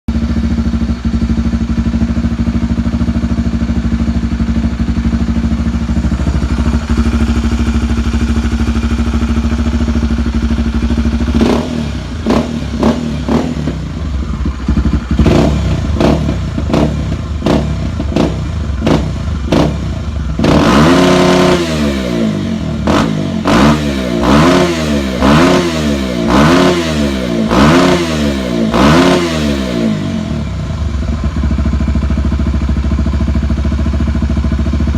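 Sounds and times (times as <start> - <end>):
motorcycle engine revving hard: 4.4 - 32.0.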